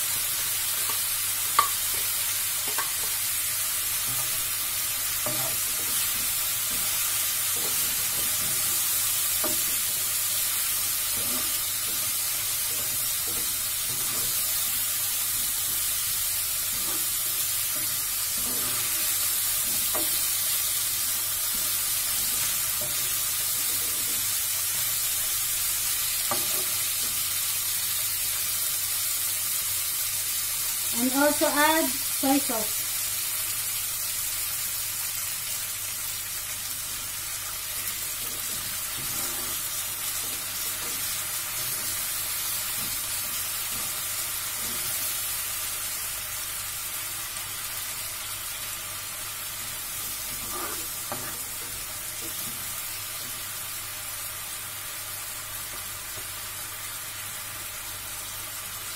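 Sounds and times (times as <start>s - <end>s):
chicken and onion sizzling: 0.0s - 58.9s
plastic spatula scraping pan: 50.3s - 51.4s.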